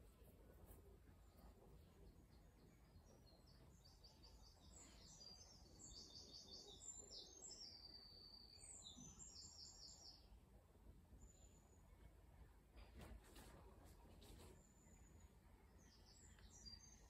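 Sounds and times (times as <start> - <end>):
songbird singing trills: 2.1 - 10.3, 15.8 - 17.0.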